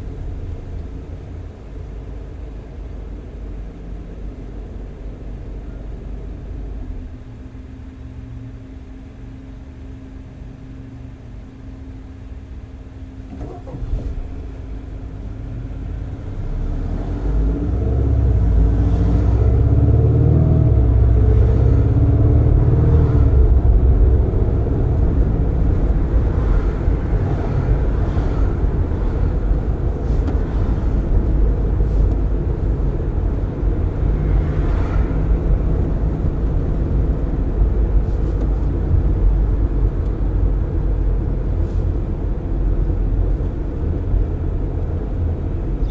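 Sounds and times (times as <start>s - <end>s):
car engine accelerating: 13.3s - 45.9s.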